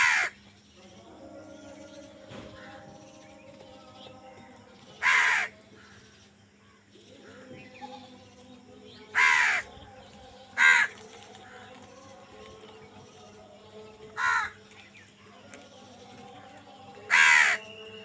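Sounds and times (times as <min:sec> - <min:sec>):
crow cawing: 0:00.0 - 0:00.4, 0:05.0 - 0:06.1, 0:09.1 - 0:09.7, 0:10.6 - 0:11.6, 0:14.2 - 0:14.6, 0:17.1 - 0:17.6.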